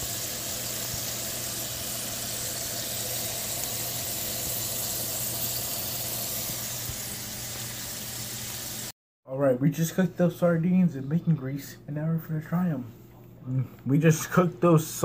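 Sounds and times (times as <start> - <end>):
fish sizzling in a frying pan: 0.0 - 8.9.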